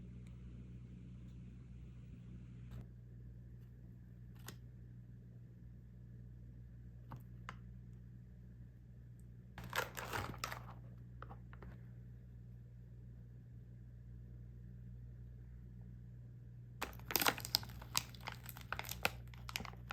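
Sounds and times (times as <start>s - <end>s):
low steady hum: 0.0s - 19.9s
packaging rustling and crinkling: 9.6s - 10.8s, 16.8s - 19.9s
food packaging clicks and taps: 9.6s - 11.7s, 16.8s - 19.9s.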